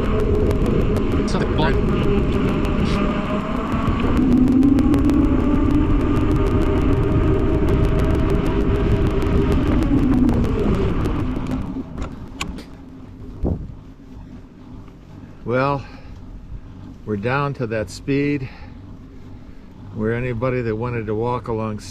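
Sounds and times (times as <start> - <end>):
fine rapid ticking: 0.0 - 14.0
wind rushing over microphone: 0.0 - 14.0
bicycle tyre hum on road: 0.0 - 21.9.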